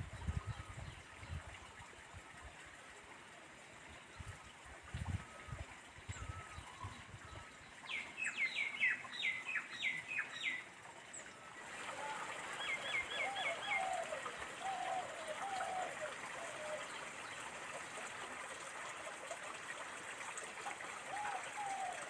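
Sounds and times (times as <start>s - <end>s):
lower wavering bird calls: 5.2s - 17.5s, 21.0s - 22.0s.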